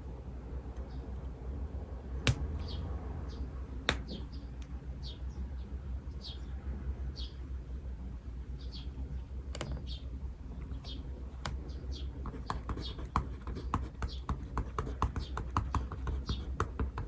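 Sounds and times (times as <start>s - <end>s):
small bird chirping: 2.5s - 6.5s, 8.5s - 13.2s
pen tapping on desk: 3.9s - 4.2s.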